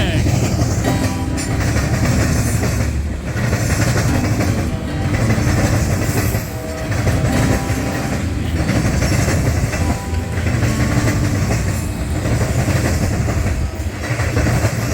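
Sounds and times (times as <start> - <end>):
train rumbling past: 0.0 - 14.9
wheels clacking over rail joints: 0.2 - 14.9.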